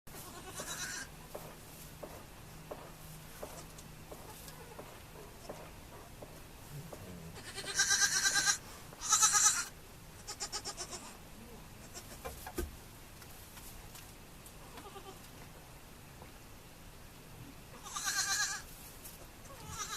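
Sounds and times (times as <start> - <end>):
goat bleating: 0.2 - 1.1, 7.4 - 11.2, 14.7 - 15.3, 17.8 - 18.7, 19.5 - 19.9.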